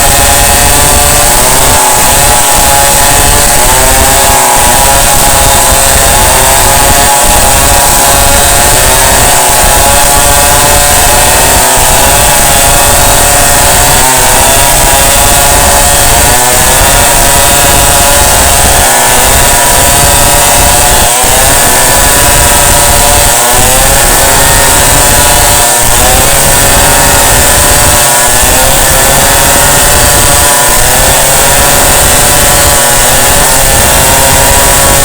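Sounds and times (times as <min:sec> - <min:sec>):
chainsaw cutting: 0:00.0 - 0:35.0.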